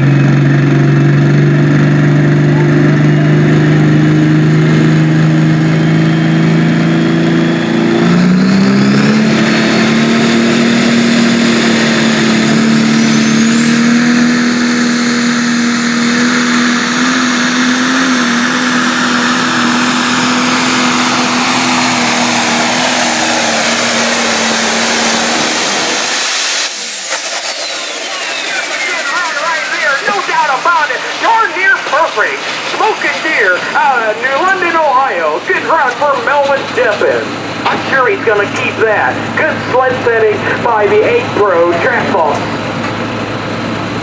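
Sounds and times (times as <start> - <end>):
diesel tractor engine at full throttle: 0.0 - 44.0
high turbo whistle: 11.8 - 34.8.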